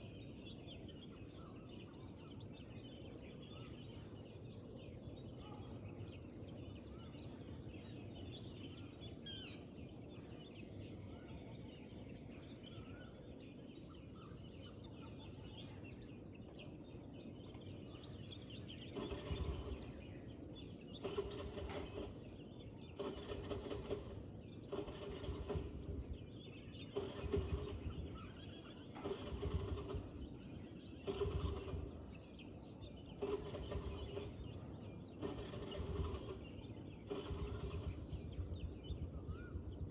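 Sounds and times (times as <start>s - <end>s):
faint birdsong: 0.0s - 39.9s
trilled whistle: 9.3s - 9.6s.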